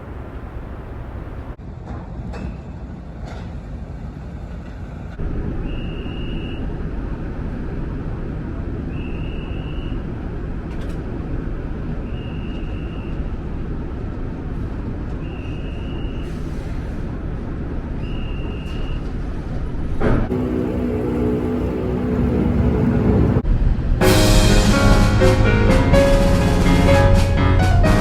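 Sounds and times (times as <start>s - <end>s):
low mechanical engine rumble: 0.0s - 1.6s, 5.2s - 24.0s.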